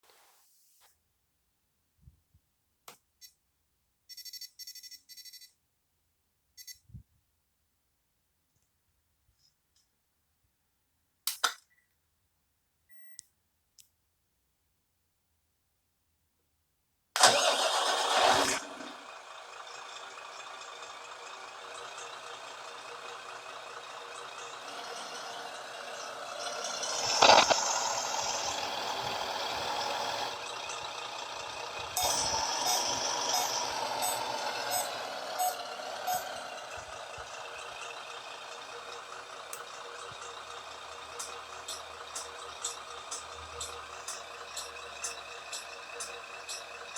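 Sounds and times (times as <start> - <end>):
simulated truck engine: 17.2 - 46.9.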